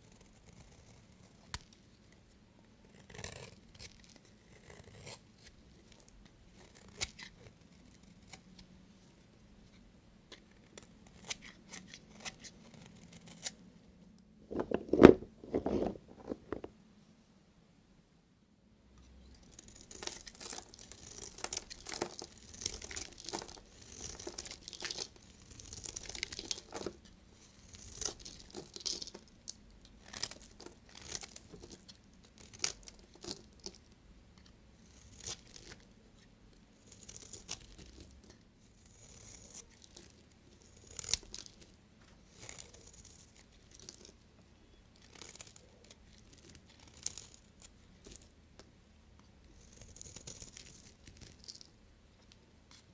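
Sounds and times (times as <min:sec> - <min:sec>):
knife cutting through soap: 0:02.9 - 0:08.4, 0:19.5 - 0:29.2, 0:30.0 - 0:33.7, 0:36.9 - 0:41.6.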